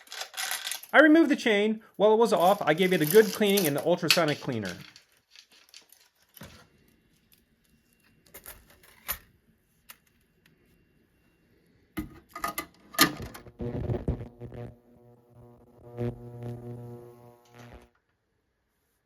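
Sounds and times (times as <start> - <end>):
bicycle chain links clinking: 0.0 - 1.0, 2.4 - 6.4.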